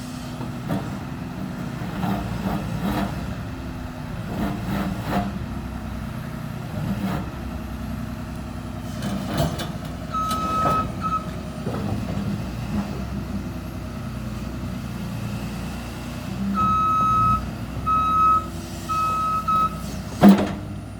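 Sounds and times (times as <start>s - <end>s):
diesel excavator engine running: 0.0s - 20.9s
travel alarm beeps: 10.1s - 11.3s, 16.6s - 19.8s.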